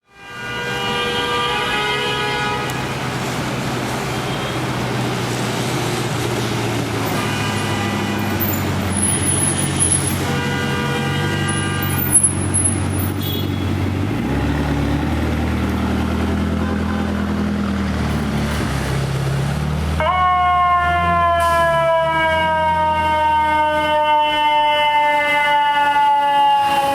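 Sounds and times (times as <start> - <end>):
fire truck horn blasts: 0.0 - 3.4, 4.0 - 4.8, 7.0 - 14.2, 16.5 - 17.4, 20.0 - 26.9
diesel engines running: 0.5 - 26.9.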